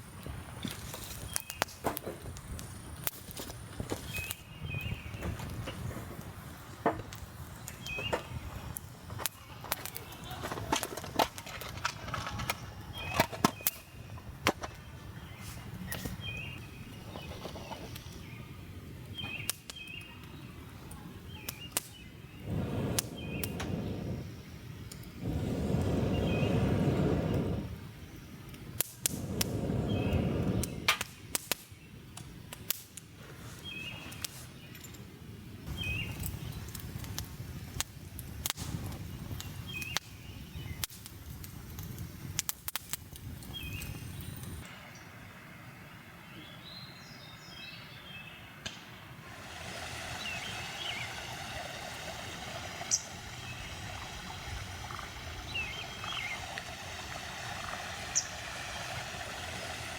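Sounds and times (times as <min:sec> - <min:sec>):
campfire crackling and popping: 0:00.0 - 0:44.7, 0:48.6 - 0:59.9
faint bird calls: 0:49.8 - 0:59.3.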